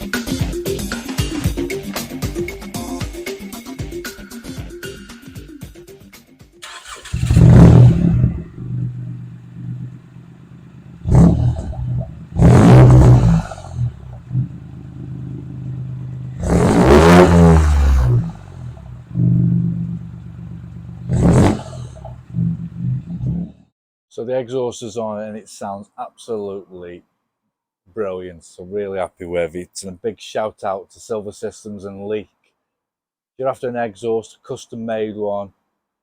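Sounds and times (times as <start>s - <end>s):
car engine revving and idling: 6.9s - 23.3s.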